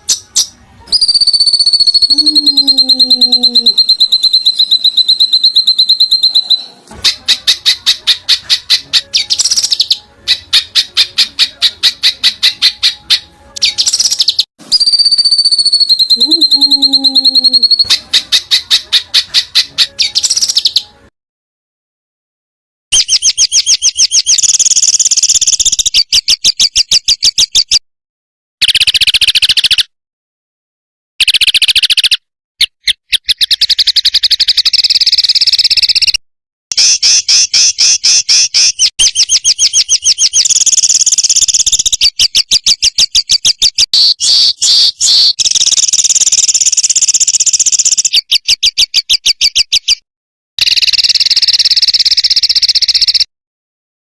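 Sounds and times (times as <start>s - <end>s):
songbird chirping song: 0.0s - 21.1s, 23.0s - 27.8s, 32.9s - 36.2s, 36.8s - 50.0s.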